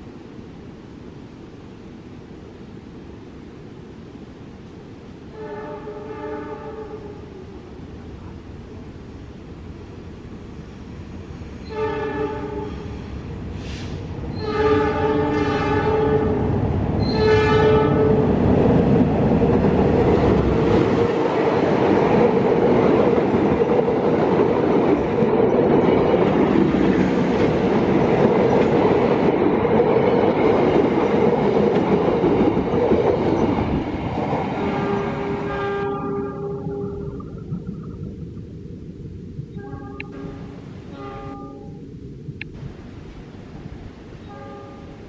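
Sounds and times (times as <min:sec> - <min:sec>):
train wheels and engine rumbling: 0:00.0 - 0:45.0
train horn blasts: 0:05.3 - 0:07.4, 0:11.6 - 0:18.3, 0:34.6 - 0:37.1, 0:39.5 - 0:41.9, 0:44.2 - 0:45.0.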